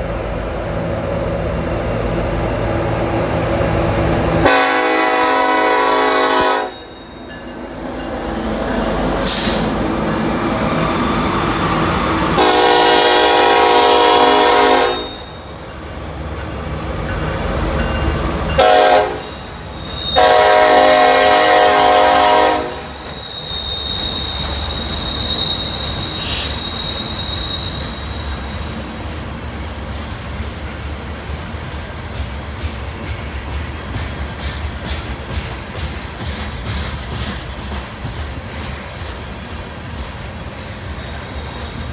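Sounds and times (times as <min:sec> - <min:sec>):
train rumbling past: 0:00.0 - 0:41.9
locomotive air horn blasts: 0:04.4 - 0:06.9, 0:12.4 - 0:15.2, 0:18.6 - 0:19.4, 0:20.0 - 0:23.1
wheel squeal: 0:15.0 - 0:15.7, 0:19.3 - 0:20.3, 0:22.9 - 0:28.8, 0:40.9 - 0:41.9.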